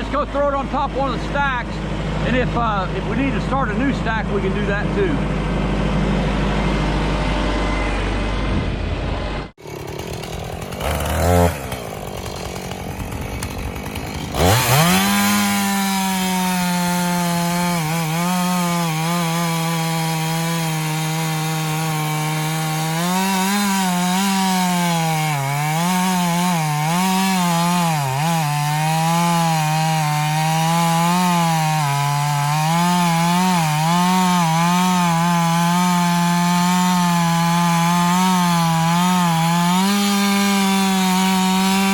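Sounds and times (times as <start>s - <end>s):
chainsaw cutting through log: 0.0s - 41.9s.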